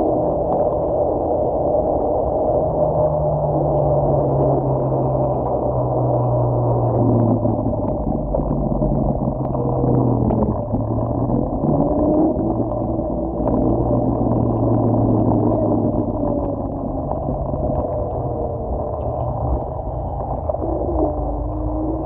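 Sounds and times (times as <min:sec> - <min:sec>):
electric scooter drone: 0:00.0 - 0:22.0.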